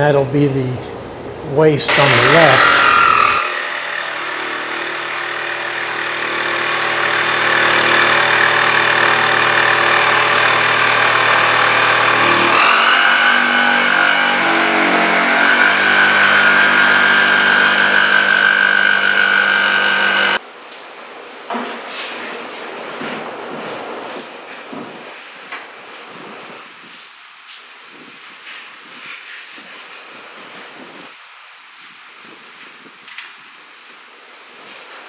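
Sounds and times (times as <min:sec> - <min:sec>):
power saw cutting plywood: 0:01.9 - 0:20.4.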